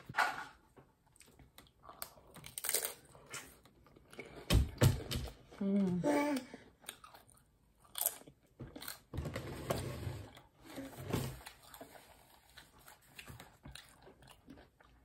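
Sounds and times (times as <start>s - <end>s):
person chewing food: 0.9s - 4.5s, 6.6s - 9.2s, 11.4s - 15.0s.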